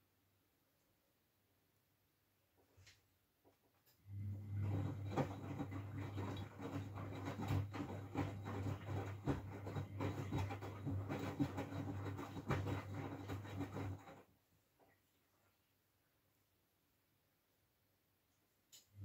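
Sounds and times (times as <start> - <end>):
washing machine motor hum: 4.0 - 14.4
laundry tumbling and water sloshing: 4.1 - 15.6.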